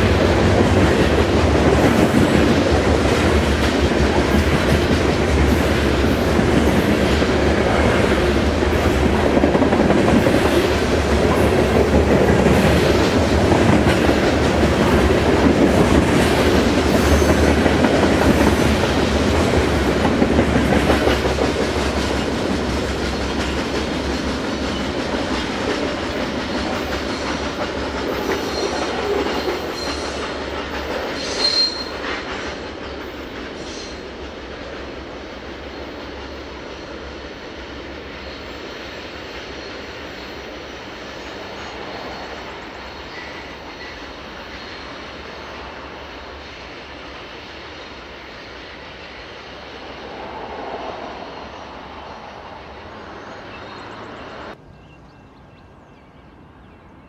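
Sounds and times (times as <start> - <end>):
train wheels clickety-clack: 0.0 - 50.8
high wheel squeal: 31.2 - 32.0.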